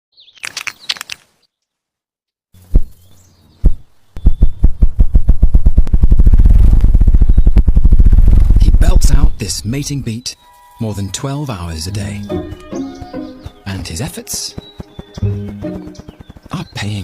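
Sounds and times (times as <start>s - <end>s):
grouse wing drumming: 11.8s - 17.0s.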